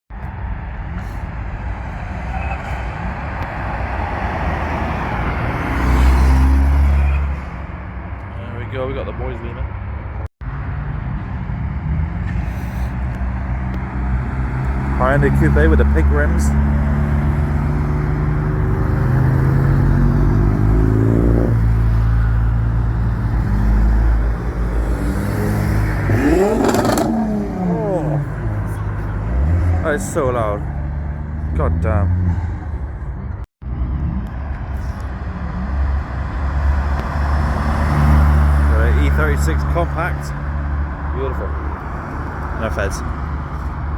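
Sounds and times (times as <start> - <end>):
car engine with loud exhaust: 0.1 - 43.9
car engine revving: 11.7 - 32.5.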